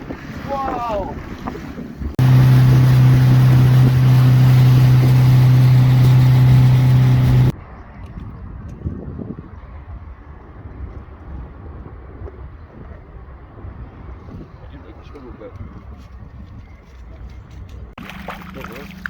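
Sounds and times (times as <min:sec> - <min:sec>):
water noise: 0:00.0 - 0:07.6, 0:18.0 - 0:19.0
wind: 0:00.0 - 0:19.0
outboard motor running: 0:02.2 - 0:07.5.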